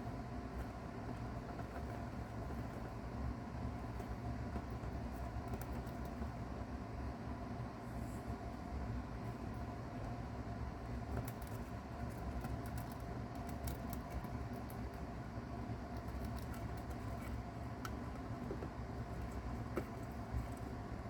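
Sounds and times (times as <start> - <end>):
steady low hum: 0.0 - 21.0
mouse chewing crackles: 3.8 - 6.4, 10.8 - 21.0.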